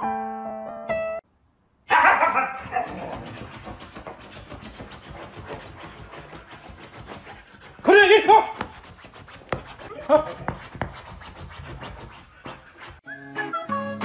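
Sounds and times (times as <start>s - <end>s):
paws scraping fabric cushion: 2.6s - 13.0s.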